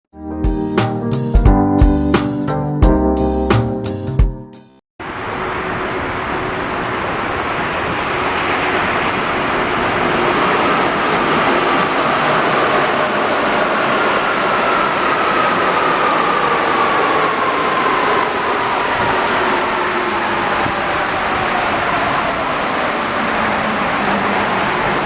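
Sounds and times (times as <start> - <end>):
metro train rumbling: 5.0 - 25.0.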